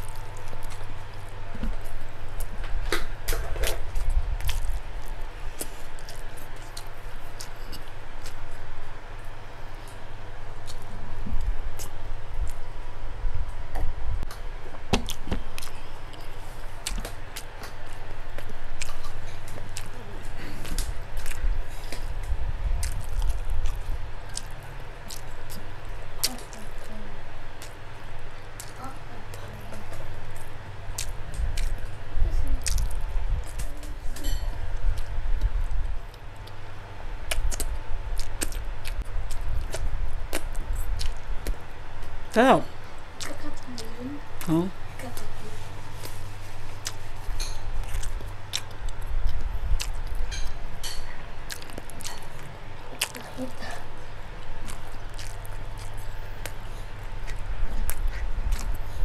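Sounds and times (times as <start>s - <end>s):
chewing food: 0.0s - 13.6s, 14.2s - 59.0s
low rumble: 29.1s - 42.2s.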